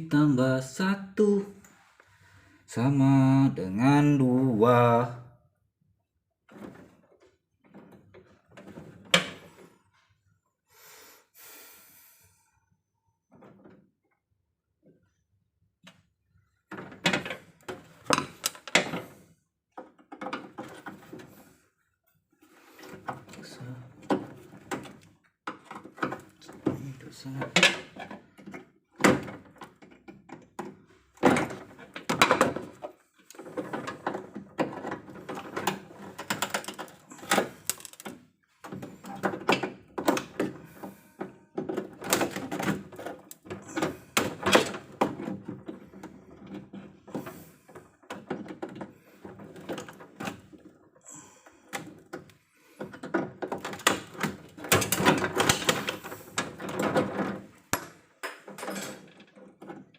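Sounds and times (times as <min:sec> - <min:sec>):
tools knocking and clattering: 0:16.7 - 0:21.4, 0:22.9 - 0:50.9, 0:51.7 - 0:59.9.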